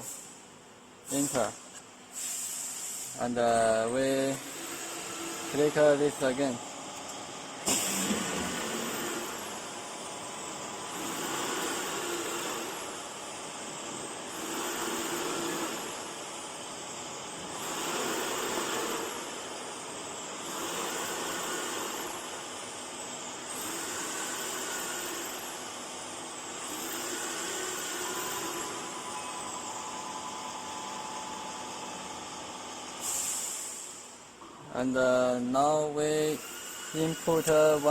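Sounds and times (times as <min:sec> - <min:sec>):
cnc router whine: 0:03.5 - 0:33.3, 0:35.6 - 0:37.9.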